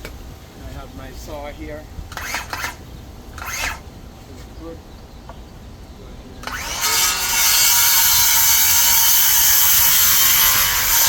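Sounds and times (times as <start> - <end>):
power saw cutting wood: 2.1 - 3.8, 6.4 - 11.0.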